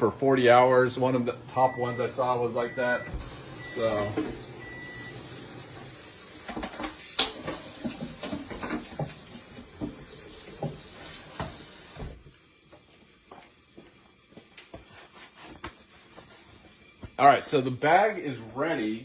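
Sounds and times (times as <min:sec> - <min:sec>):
sausage sizzling in frying pan: 0:03.2 - 0:12.3.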